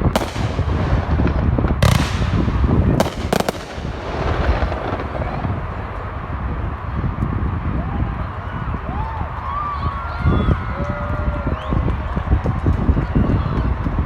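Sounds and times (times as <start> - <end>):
fireworks bangs: 0.0 - 7.6
continuous low rumble: 0.0 - 14.0.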